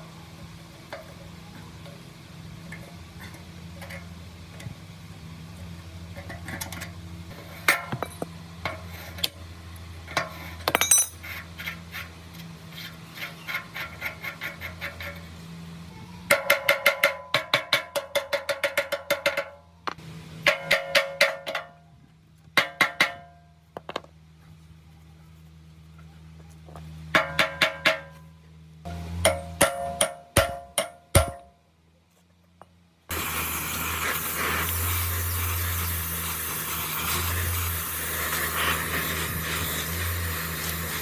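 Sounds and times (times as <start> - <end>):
ringing metal-on-metal strikes: 28.9 - 31.6.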